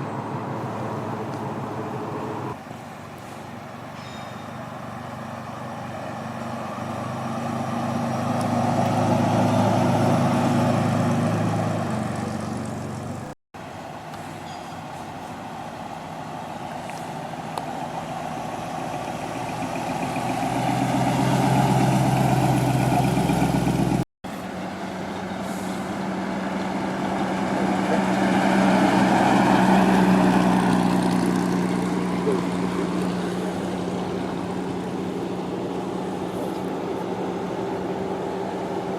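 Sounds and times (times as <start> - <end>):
cars driving slowly past: 0.0 - 38.9.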